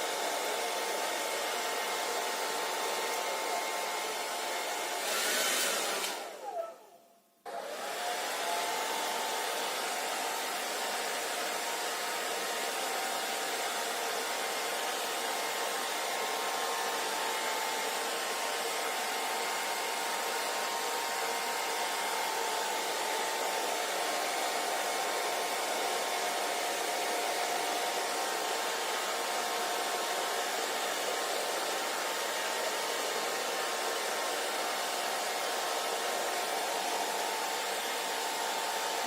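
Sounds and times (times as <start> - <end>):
hair dryer blowing: 0.0 - 6.8, 7.5 - 39.0.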